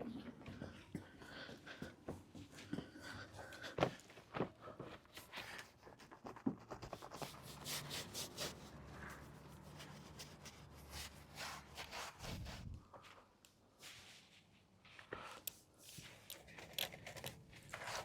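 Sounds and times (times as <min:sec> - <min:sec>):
rubbing and scraping: 0:05.2 - 0:12.9.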